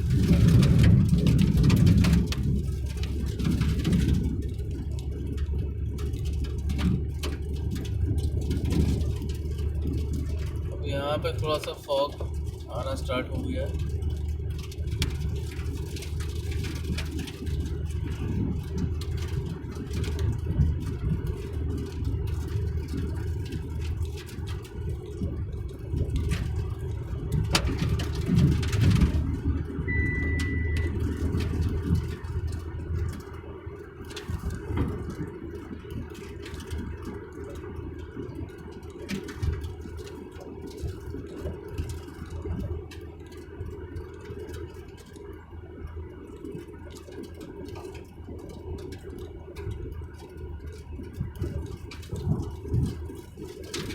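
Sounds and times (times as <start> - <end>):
vehicle engine and tyre rumble: 0.0 - 53.9
brief high beep: 29.9 - 31.0.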